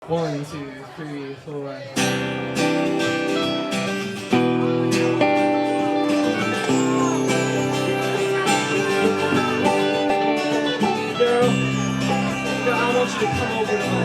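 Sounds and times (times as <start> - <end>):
live band playing pop-rock: 2.0 - 14.0
strummed guitar: 2.0 - 14.0.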